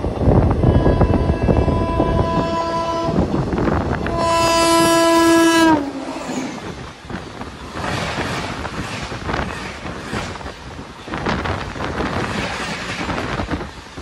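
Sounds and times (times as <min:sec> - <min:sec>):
train coaches rumbling past: 0:00.0 - 0:14.0
train horn blasts: 0:00.6 - 0:03.3, 0:04.0 - 0:06.4.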